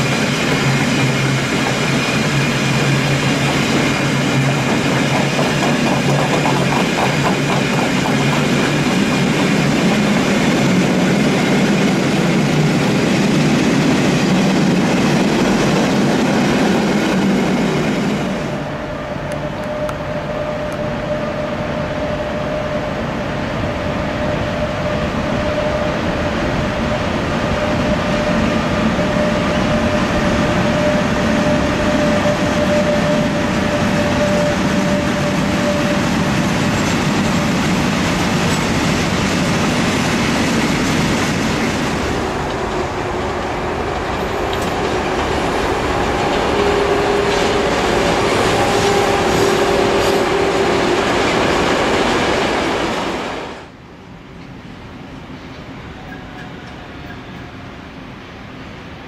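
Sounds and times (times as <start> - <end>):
freight train rolling over rails: 0.0 - 59.0.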